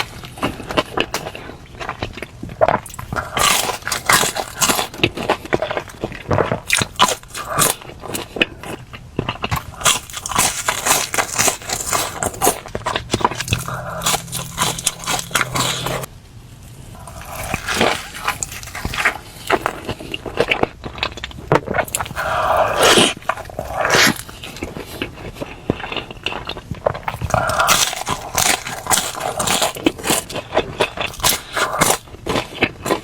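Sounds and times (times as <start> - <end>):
crunchy eating and chewing: 0.0 - 33.0.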